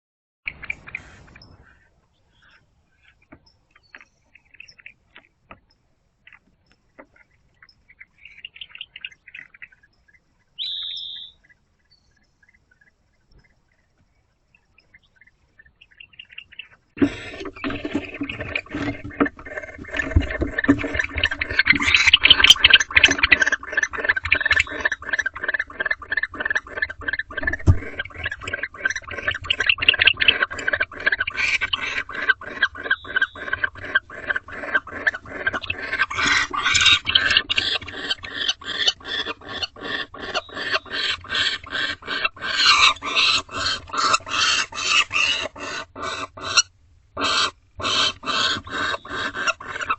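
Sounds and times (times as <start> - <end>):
owls hissing: 17.0 - 49.9.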